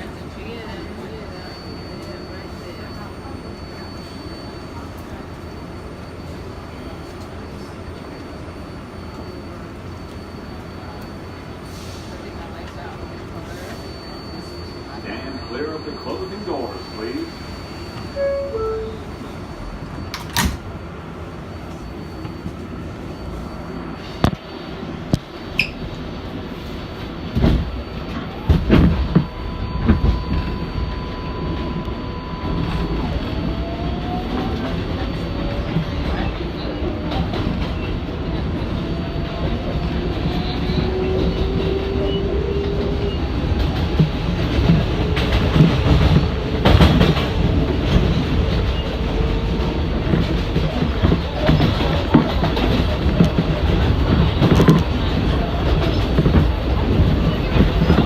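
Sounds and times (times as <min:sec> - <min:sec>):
subway motor whine: 0:00.0 - 0:58.0.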